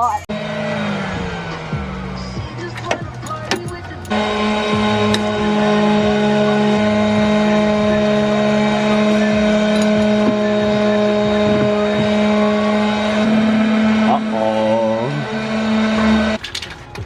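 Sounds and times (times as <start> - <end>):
power tool motor whining: 0.3 - 16.4.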